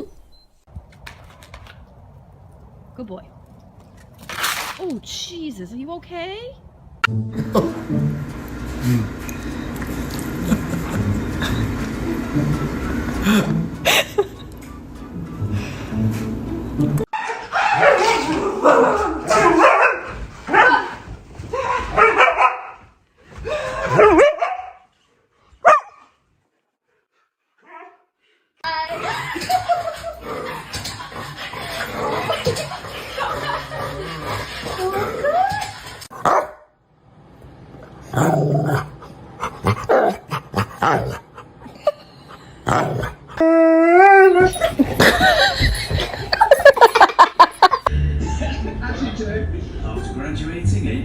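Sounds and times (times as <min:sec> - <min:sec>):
dog barking: 0:17.2 - 0:20.9, 0:22.0 - 0:22.8, 0:23.9 - 0:24.8, 0:25.6 - 0:26.0, 0:36.1 - 0:36.7
dog whining and yipping: 0:43.3 - 0:45.1.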